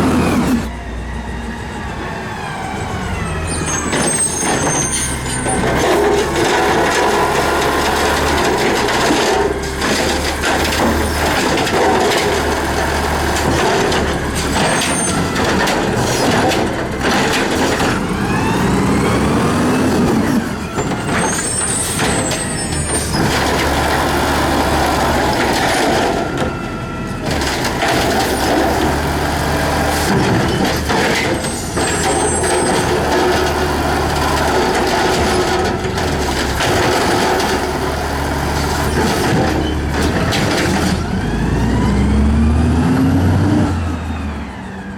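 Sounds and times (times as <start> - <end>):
garbage truck engine: 0.0 - 44.9
high squeals: 3.2 - 6.2, 18.3 - 23.9, 31.3 - 33.2.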